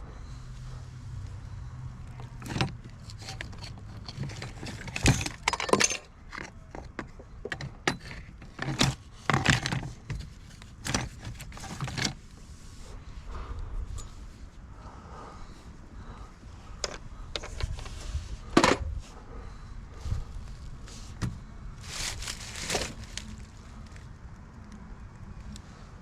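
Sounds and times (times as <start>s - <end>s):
junk clinking and clattering: 2.1s - 12.2s.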